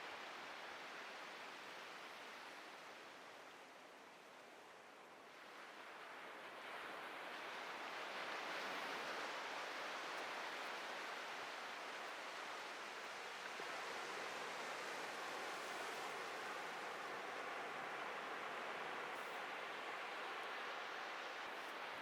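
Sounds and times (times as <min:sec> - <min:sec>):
surf waves breaking on beach: 0:05.4 - 0:22.0.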